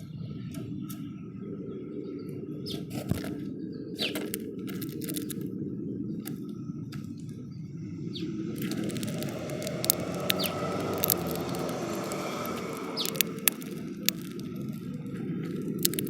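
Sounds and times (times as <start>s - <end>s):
small birds chirping: 0.0s - 16.0s
quick clicks and rustles: 4.0s - 5.5s, 8.6s - 16.0s
low rumble: 4.4s - 16.0s.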